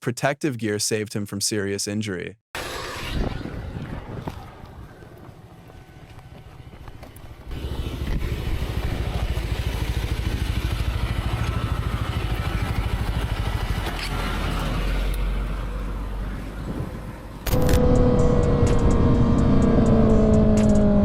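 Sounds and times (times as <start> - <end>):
motorcycle engine running: 4.3 - 16.0, 17.5 - 21.0.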